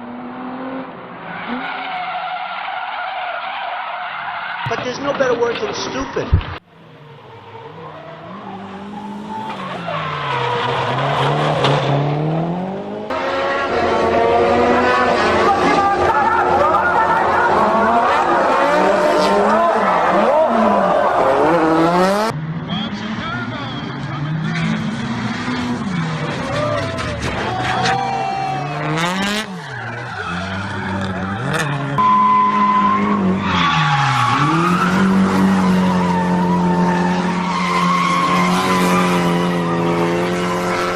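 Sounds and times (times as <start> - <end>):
car engine revving: 6.4 - 40.9
higher-pitched car engine: 6.7 - 40.9
tyre squeal: 26.4 - 40.0.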